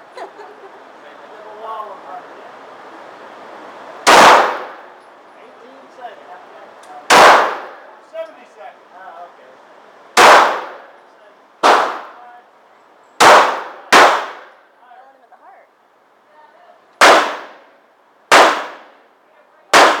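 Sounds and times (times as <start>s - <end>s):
pistol shots with echo: 4.0s - 4.9s, 7.1s - 7.8s, 10.2s - 10.9s, 11.6s - 12.2s, 13.2s - 14.6s, 17.0s - 17.7s, 18.3s - 18.9s, 19.7s - 20.0s.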